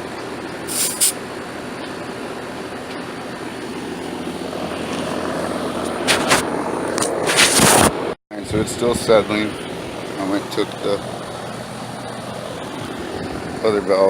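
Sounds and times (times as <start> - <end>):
short hisses: 0.7 - 1.2
air conditioner unit whirring: 8.0 - 14.0.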